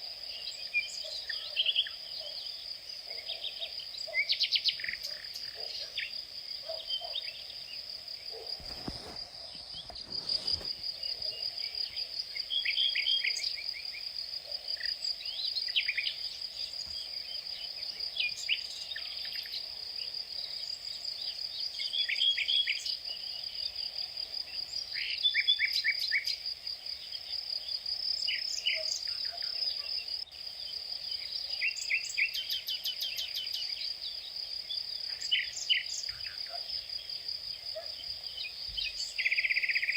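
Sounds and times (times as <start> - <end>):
high insect trill: 0.3 - 19.6.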